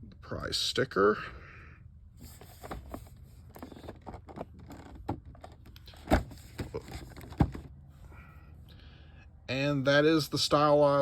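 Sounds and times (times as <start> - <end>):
packaging clicks and rustles: 2.3 - 7.7.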